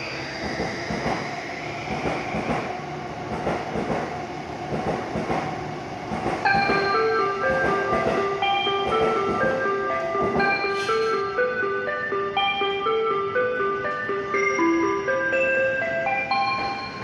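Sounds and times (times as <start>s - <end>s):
train hum: 0.0s - 17.0s
high tone: 6.5s - 17.0s
platform chime tune: 6.5s - 17.0s.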